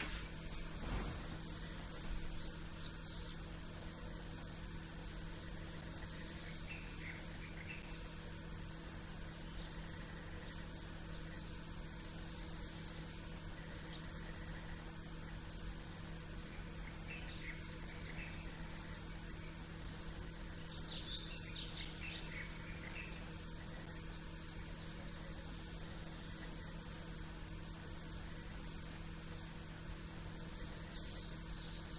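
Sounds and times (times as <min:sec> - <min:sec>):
background hiss: 0:00.0 - 0:31.9
small birds chirping: 0:00.0 - 0:31.9
steady low hum: 0:00.0 - 0:31.9.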